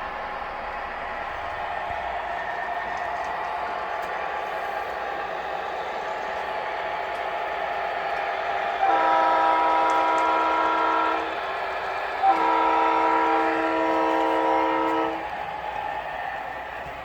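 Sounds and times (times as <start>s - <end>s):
model train horn blasts: 8.8s - 11.4s, 12.2s - 15.3s.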